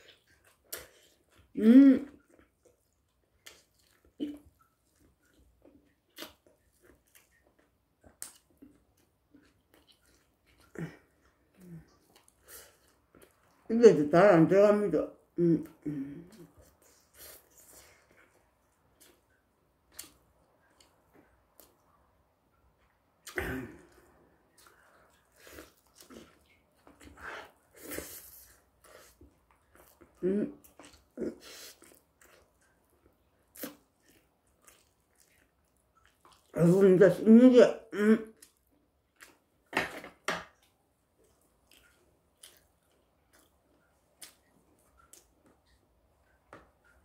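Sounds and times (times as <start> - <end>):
person chewing and lip-smacking: 0.0 - 13.6, 22.8 - 36.6, 40.5 - 47.0.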